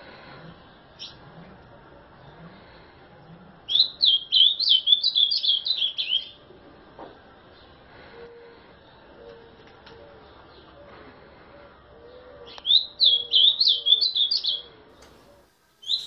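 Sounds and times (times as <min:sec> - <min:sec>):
bird singing warbled phrase: 0:12.1 - 0:14.7.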